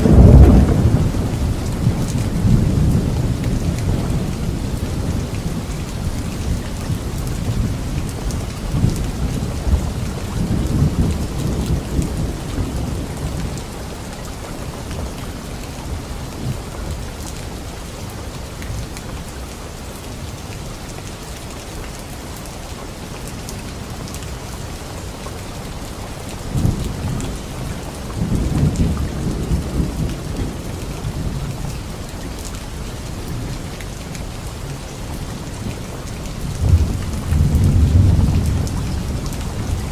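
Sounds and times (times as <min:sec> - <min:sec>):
thunder rumbling: 0:00.0 - 0:17.1, 0:26.5 - 0:39.9
light rain on leaves: 0:00.0 - 0:39.9.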